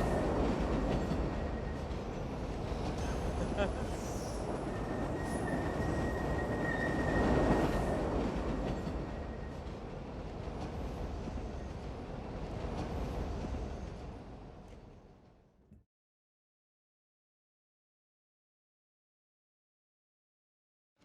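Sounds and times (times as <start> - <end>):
train rumbling on rails: 0.0 - 15.3.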